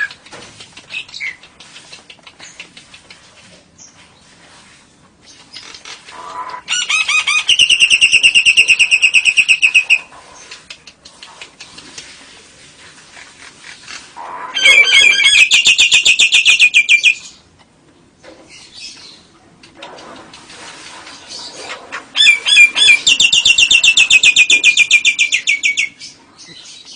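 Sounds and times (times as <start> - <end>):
bird chattering trills: 13.7 - 17.4, 21.4 - 26.9.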